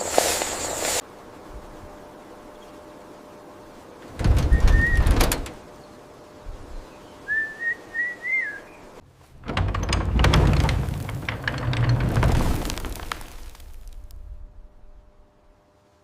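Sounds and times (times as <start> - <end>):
short wavering whistle: 7.3 - 8.7
rumbling rattling scrape: 9.4 - 15.0.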